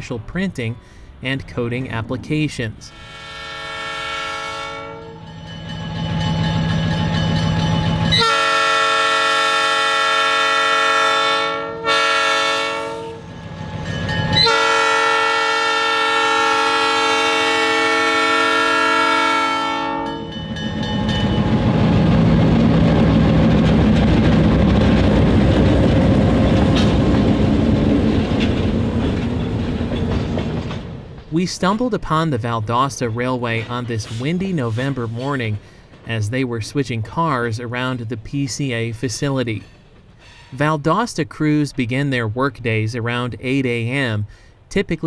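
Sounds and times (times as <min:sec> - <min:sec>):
moving train rumble: 0:00.0 - 0:43.5
locomotive air horn blasts: 0:02.9 - 0:05.3, 0:08.1 - 0:13.3, 0:14.3 - 0:20.3.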